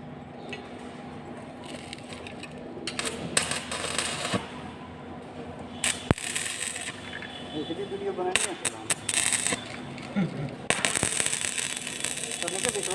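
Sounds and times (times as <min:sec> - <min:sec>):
arc welding crackling: 0:01.5 - 0:04.8, 0:05.7 - 0:12.9.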